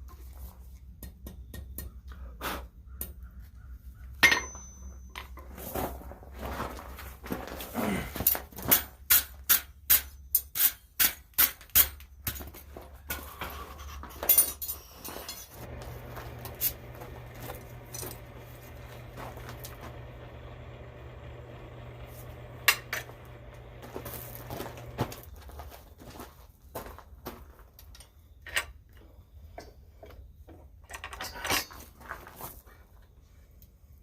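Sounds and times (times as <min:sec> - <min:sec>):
hammer striking steel on anvil: 0:04.2 - 0:05.2
steady low hum: 0:15.5 - 0:25.3.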